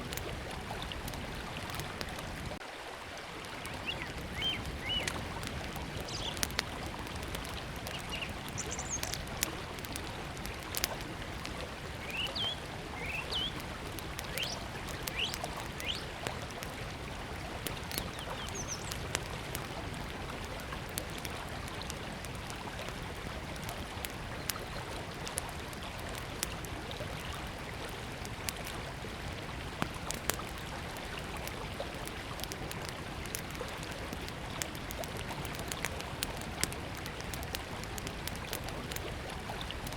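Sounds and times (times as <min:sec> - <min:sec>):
wood fire crackling and popping: 0:00.0 - 0:02.6, 0:03.4 - 0:39.9
bird chirps: 0:08.1 - 0:09.1, 0:12.1 - 0:13.6.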